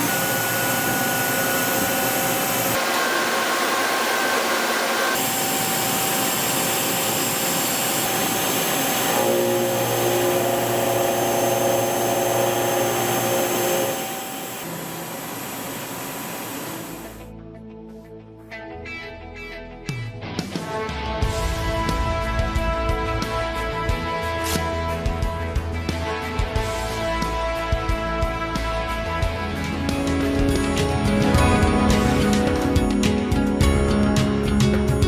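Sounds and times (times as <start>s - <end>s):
machine cutting hiss: 0.0s - 17.2s
whining spindle tones: 0.0s - 17.2s.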